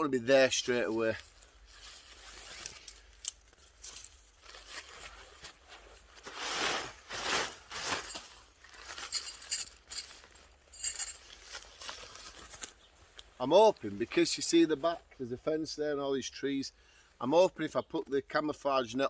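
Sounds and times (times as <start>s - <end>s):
rustling and crackling: 0.7s - 14.3s.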